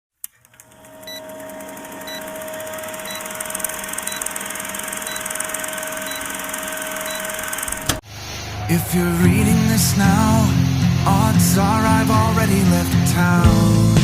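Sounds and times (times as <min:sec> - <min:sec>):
electric motor spinning: 0:00.5 - 0:08.0.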